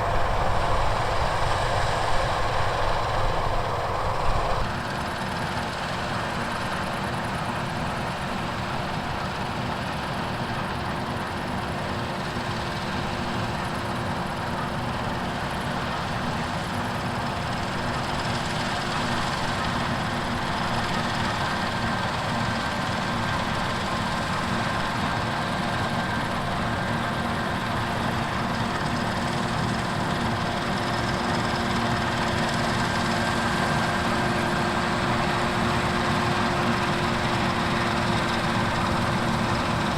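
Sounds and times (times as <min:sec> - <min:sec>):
higher whine: 0:00.0 - 0:05.1
steady whine: 0:00.0 - 0:07.4, 0:17.3 - 0:39.9
heavy diesel machinery running: 0:00.0 - 0:39.9.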